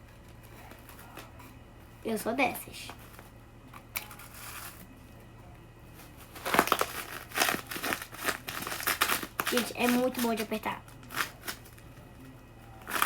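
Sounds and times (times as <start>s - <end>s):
plastic cling film crinkling: 5.9s - 12.0s, 12.8s - 13.0s.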